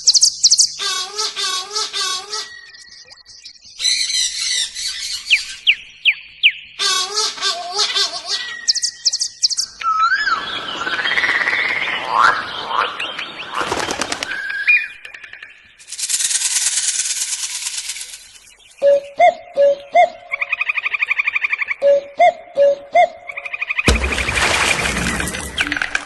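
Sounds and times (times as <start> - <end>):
buzzy bird trill: 0.0 - 5.5
bird calls: 0.0 - 26.0
bird chatter: 10.4 - 18.9.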